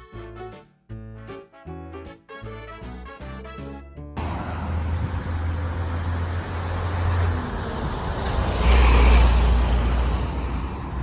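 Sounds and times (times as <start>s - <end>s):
motor vehicle engine humming: 4.2s - 11.0s.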